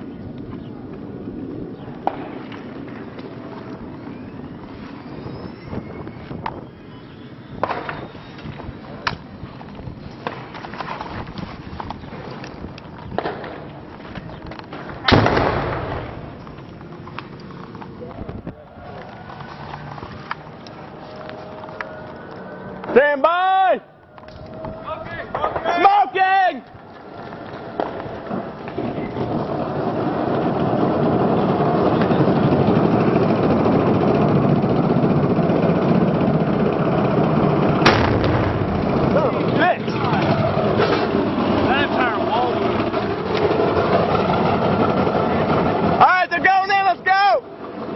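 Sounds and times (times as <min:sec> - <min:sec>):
gunshots: 0:15.0 - 0:16.2, 0:37.8 - 0:38.9
loud echoing bang: 0:15.0 - 0:16.3, 0:37.8 - 0:39.1
vehicle engine running: 0:30.3 - 0:46.0.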